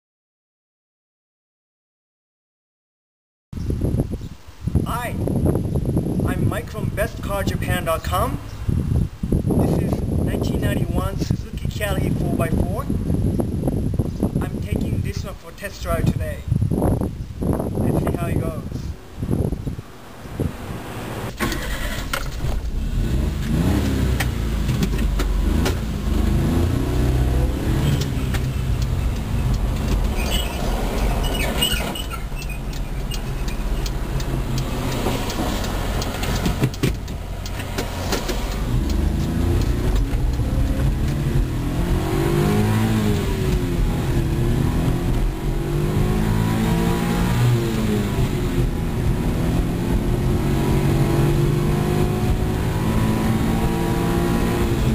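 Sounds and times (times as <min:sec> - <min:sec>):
small truck engine accelerating: 0:20.9 - 0:53.7.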